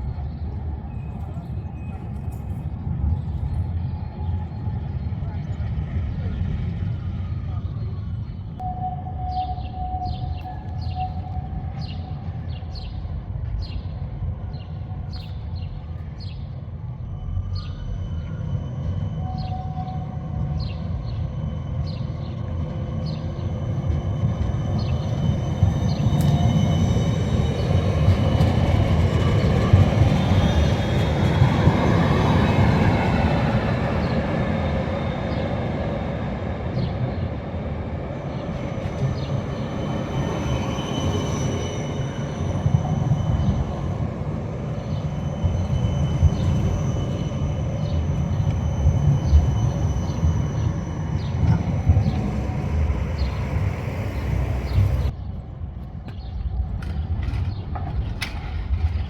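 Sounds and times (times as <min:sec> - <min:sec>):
tram rumbling on rails: 0:00.0 - 0:59.0.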